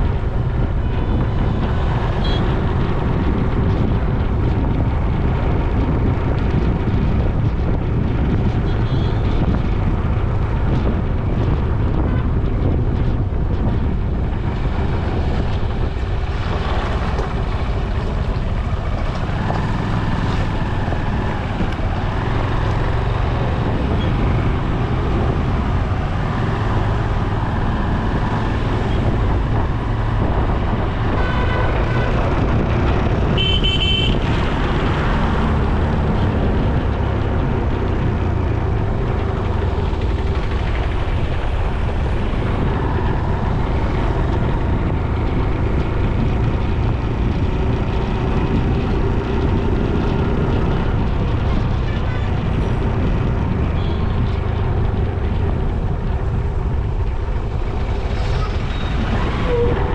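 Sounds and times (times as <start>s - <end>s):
wind rush and road noise: 0.0s - 59.9s
vehicle horn honking: 2.2s - 2.5s, 31.1s - 32.1s, 33.4s - 34.2s.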